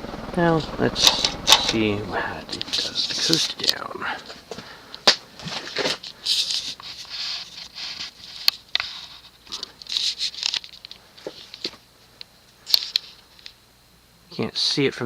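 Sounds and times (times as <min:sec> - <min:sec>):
ceiling fan coasting down: 0:00.0 - 0:06.8.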